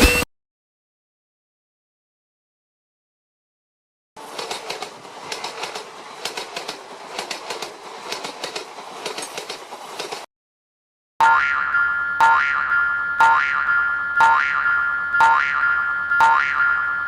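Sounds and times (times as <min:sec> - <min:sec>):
train wheels clattering over rail joints: 0:04.2 - 0:10.3.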